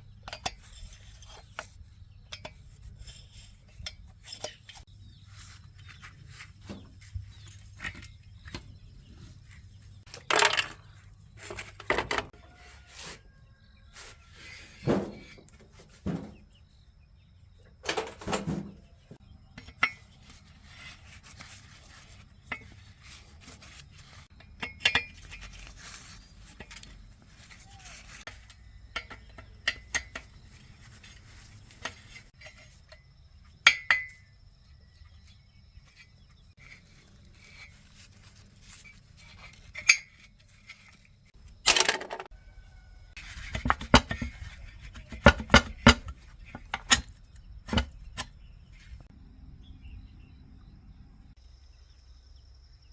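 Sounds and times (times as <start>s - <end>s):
metal tools clinking and knocking: 0.0s - 4.9s, 10.0s - 12.4s, 17.8s - 18.8s, 19.6s - 20.5s, 24.4s - 34.3s, 37.4s - 42.4s, 43.2s - 49.1s.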